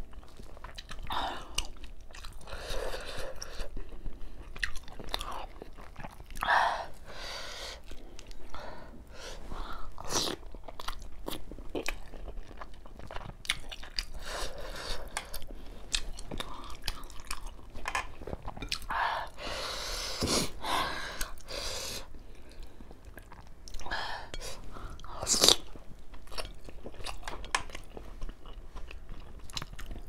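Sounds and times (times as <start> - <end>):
chewing and lip-smacking: 0.0 - 6.5, 9.9 - 19.0, 22.2 - 30.0.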